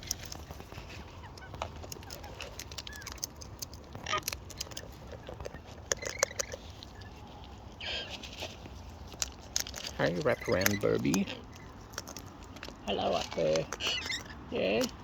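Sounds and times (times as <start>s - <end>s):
parrots squeaky calls: 1.1s - 3.2s, 7.8s - 8.3s, 10.2s - 11.8s, 13.6s - 14.6s.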